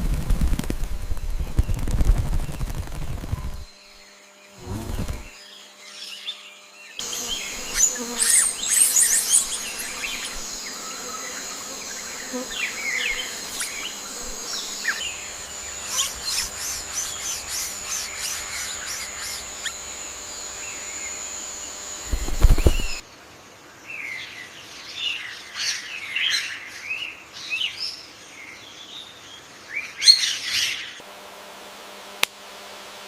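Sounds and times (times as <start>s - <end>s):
insect buzz: 0.0s - 23.0s.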